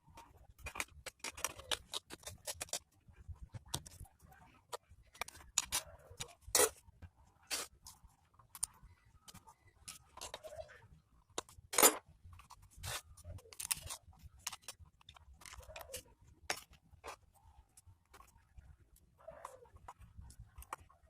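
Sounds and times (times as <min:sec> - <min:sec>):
tools and metal parts clicking: 0:11.4 - 0:16.8.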